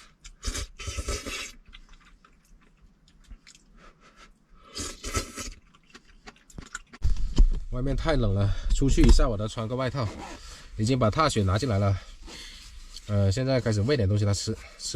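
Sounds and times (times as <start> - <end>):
person chewing: 0.0 - 7.5.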